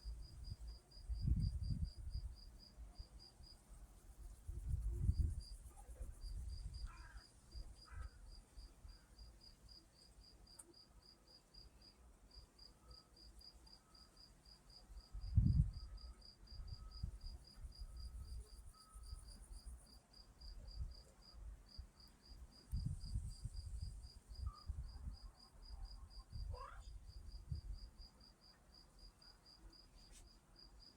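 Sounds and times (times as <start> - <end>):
cricket chirping: 0.0 - 30.9.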